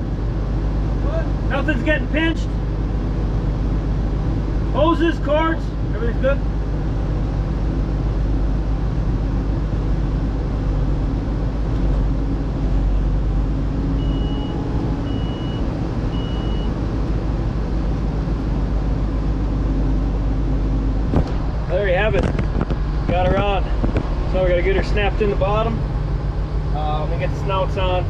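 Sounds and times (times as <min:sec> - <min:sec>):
combine harvester running: 0:00.0 - 0:28.0
short high beeps: 0:14.0 - 0:16.7.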